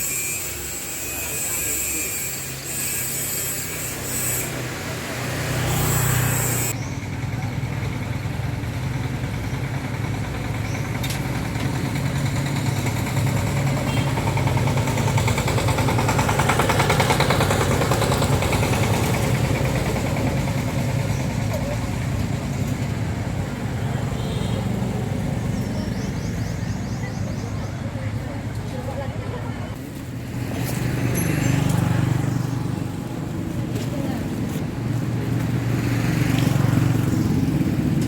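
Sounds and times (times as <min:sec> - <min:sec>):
small engine running: 0:00.0 - 0:26.4.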